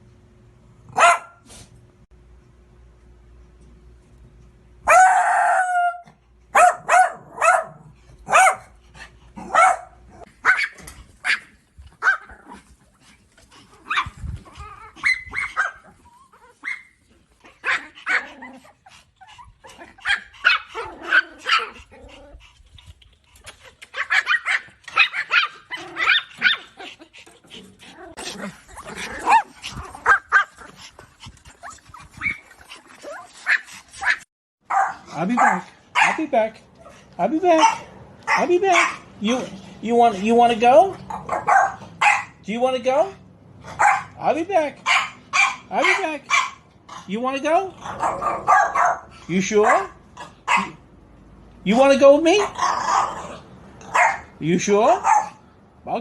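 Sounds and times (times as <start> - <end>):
dogs barking: 0.9 - 1.4, 4.8 - 12.3, 14.9 - 17.0, 17.6 - 18.7, 19.8 - 21.9, 23.9 - 27.0, 28.8 - 30.9, 33.4 - 36.3, 37.5 - 39.1, 41.0 - 42.4, 43.6 - 44.2, 44.8 - 46.7, 47.8 - 50.8, 52.3 - 54.4, 55.0 - 55.4.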